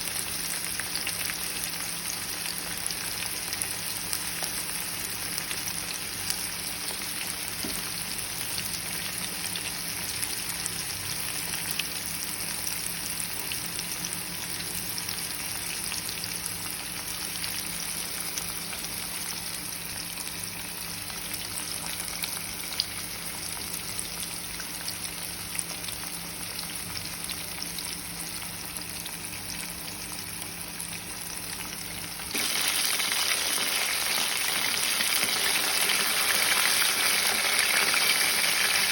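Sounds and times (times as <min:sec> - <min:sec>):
fish deep-frying in oil: 0:00.0 - 0:38.9.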